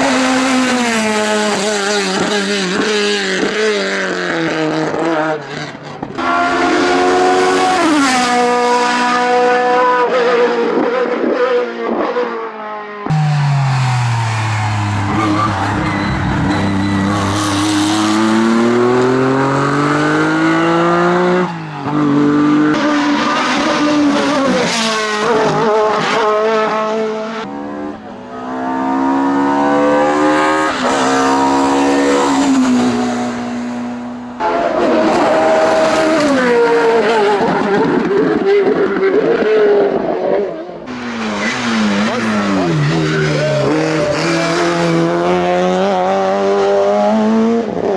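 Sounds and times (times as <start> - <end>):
racing car engine: 0.0 - 47.9.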